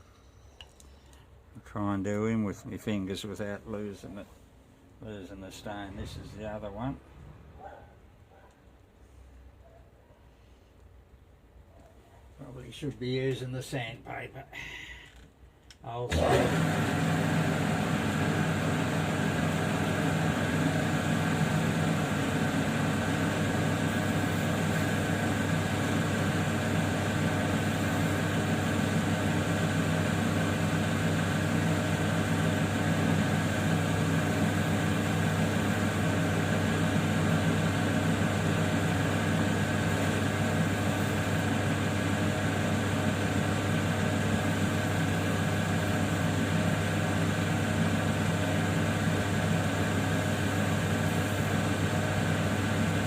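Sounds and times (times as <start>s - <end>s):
grinding wheel motor humming: 16.1s - 53.0s.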